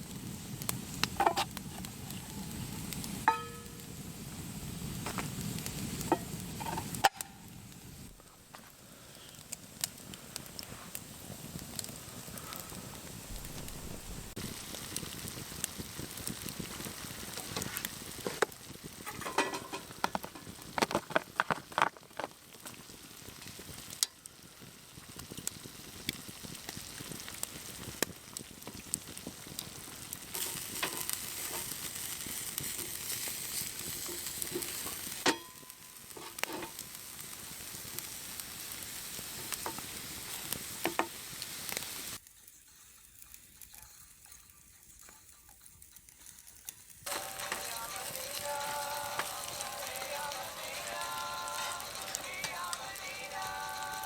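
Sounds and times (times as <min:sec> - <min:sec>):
food sizzling in a pan: 0:00.0 - 0:54.0
utensils clinking against a pan: 0:03.3 - 0:03.8, 0:06.1 - 0:07.4, 0:19.0 - 0:22.2, 0:30.4 - 0:31.8, 0:32.8 - 0:36.8.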